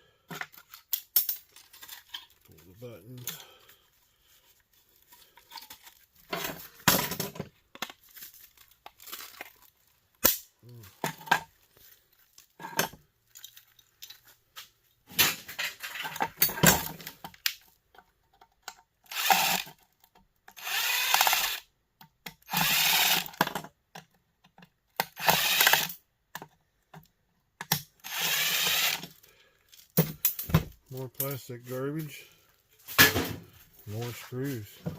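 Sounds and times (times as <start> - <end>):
parts clicking and knocking: 0.3 - 3.5, 12.3 - 31.4
cordless drill bursts: 19.1 - 19.7, 20.6 - 21.6, 22.5 - 23.4, 25.1 - 26.0, 28.0 - 29.1.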